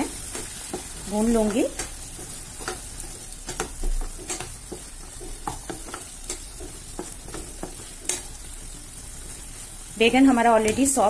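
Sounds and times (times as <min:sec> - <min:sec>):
spice paste sizzling in oil: 0:00.0 - 0:11.0
spatula scraping a pan: 0:00.1 - 0:09.6.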